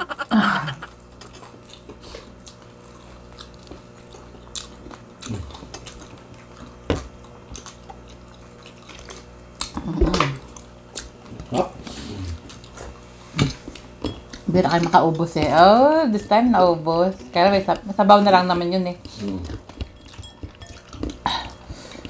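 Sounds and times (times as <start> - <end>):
voice murmuring: 0.0 - 0.9
chicken wings being chewed: 0.0 - 15.3, 18.9 - 22.0
steady low hum: 0.0 - 22.0.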